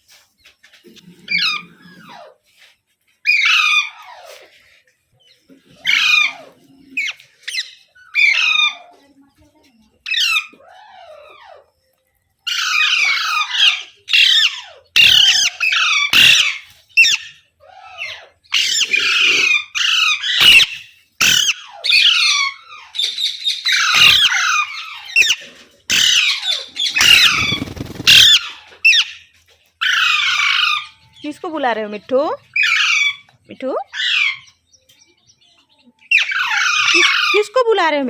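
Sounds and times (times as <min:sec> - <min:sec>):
parrot screeching: 0:01.3 - 0:02.3, 0:03.2 - 0:04.4, 0:05.8 - 0:08.9, 0:10.1 - 0:11.7, 0:12.4 - 0:31.0, 0:32.5 - 0:33.3, 0:33.9 - 0:34.6, 0:36.1 - 0:37.6.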